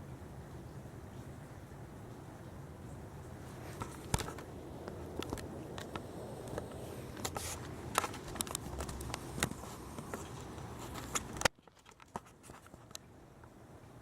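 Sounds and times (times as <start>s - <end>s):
rain hissing: 0.9s - 11.5s.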